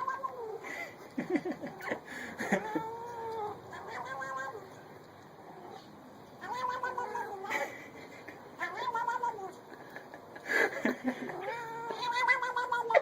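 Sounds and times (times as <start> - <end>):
cat meowing: 0.0 - 0.6, 2.6 - 4.7, 6.4 - 7.5, 8.6 - 9.6, 11.3 - 13.0.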